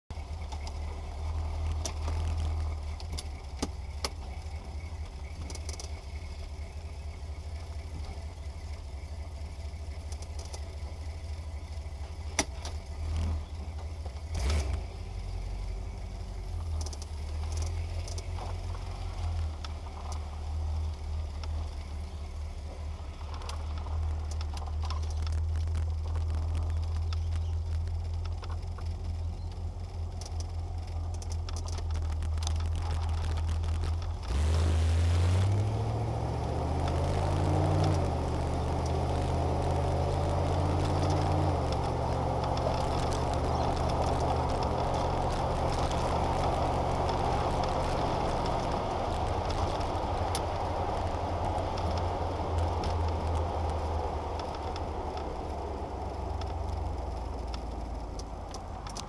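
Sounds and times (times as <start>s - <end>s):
car engine idling: 0.0s - 59.0s
clicks and rattles: 23.2s - 34.4s, 51.6s - 59.0s.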